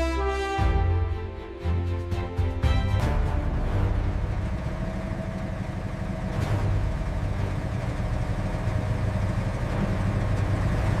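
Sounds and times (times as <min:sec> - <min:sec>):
heavy engine idling: 0:02.8 - 0:11.0.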